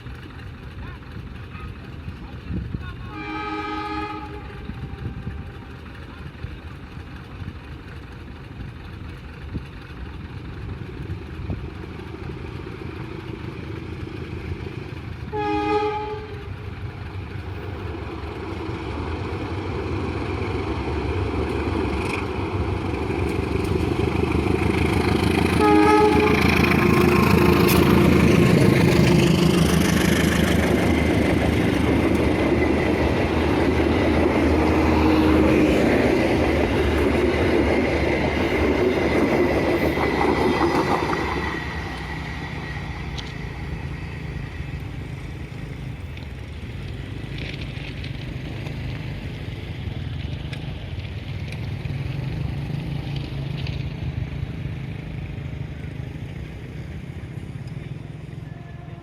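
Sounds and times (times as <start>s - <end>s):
train rumble: 0.0s - 59.0s
train horn blasts: 3.1s - 5.6s, 15.3s - 16.6s, 25.4s - 28.0s, 58.4s - 59.0s.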